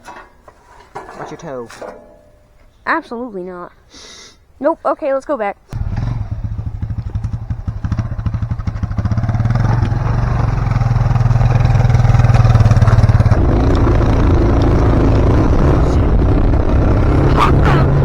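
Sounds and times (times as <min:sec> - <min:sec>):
atv engine running: 0:05.8 - 0:18.0.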